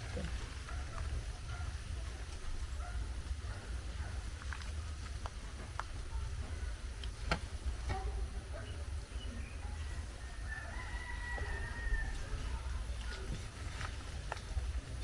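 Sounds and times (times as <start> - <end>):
rooster crowing: 10.0 - 12.6.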